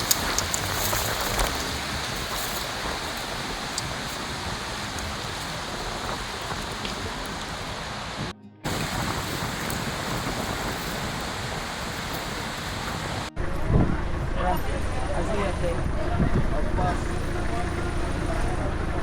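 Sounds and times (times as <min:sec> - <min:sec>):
river water rushing: 0:00.0 - 0:13.3.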